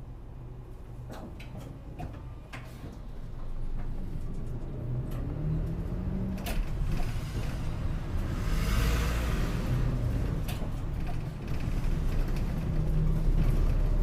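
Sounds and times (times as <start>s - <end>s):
bus engine accelerating: 3.0s - 14.0s.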